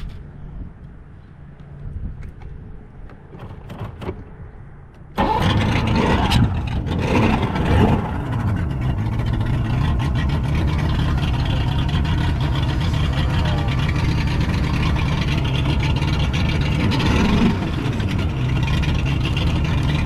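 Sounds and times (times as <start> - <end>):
boat engine revving: 5.2 - 20.0.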